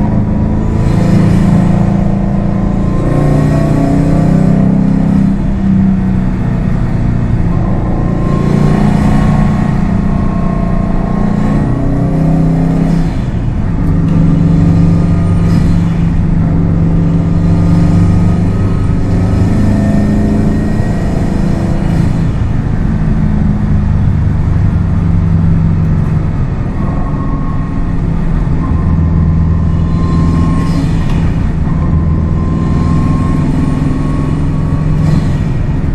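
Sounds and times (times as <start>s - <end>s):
car engine revving: 0.0s - 35.9s
road noise: 0.0s - 35.9s.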